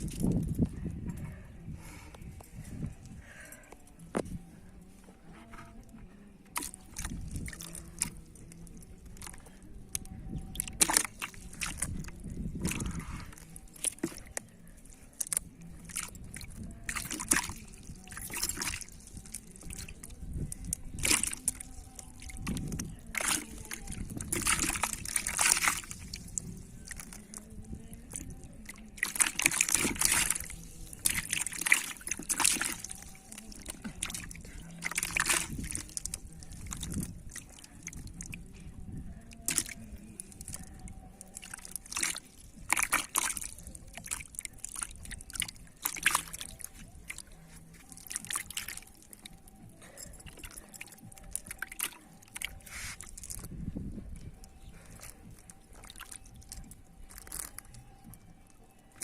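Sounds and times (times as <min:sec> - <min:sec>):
shallow water sloshing and splashing: 0:06.5 - 0:59.0
water trickling and dripping: 0:06.6 - 0:59.0.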